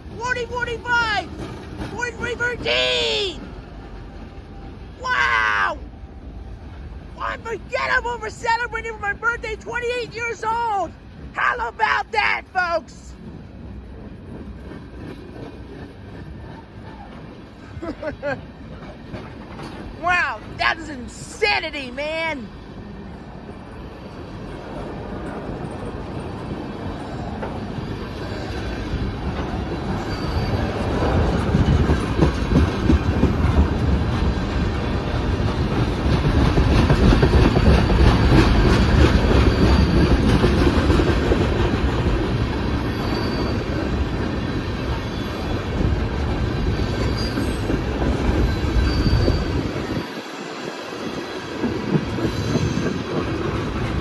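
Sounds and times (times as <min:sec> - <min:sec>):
freight train wheels rumbling on rails: 0:00.0 - 0:54.0
faint high wheel squeals: 0:29.9 - 0:30.9, 0:39.4 - 0:40.3, 0:42.8 - 0:45.7, 0:46.7 - 0:53.1.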